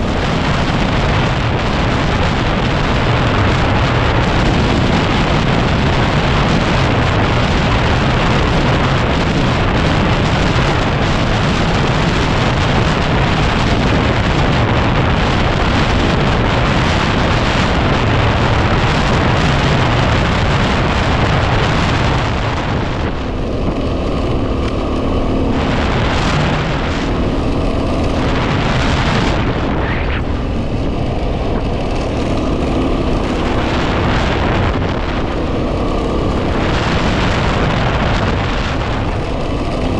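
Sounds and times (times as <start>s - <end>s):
motorcycle engine: 0.0s - 39.9s
wind buffeting microphone: 0.0s - 39.9s.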